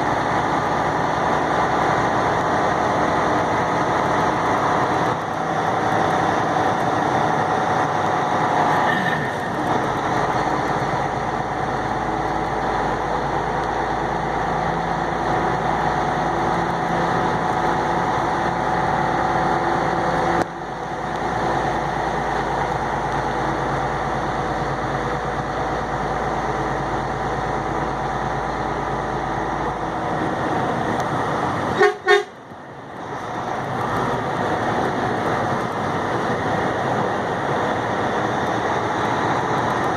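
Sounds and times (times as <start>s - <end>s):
road noise: 0.0s - 39.9s
truck engine running: 0.0s - 39.9s
horn toots: 31.8s - 32.4s.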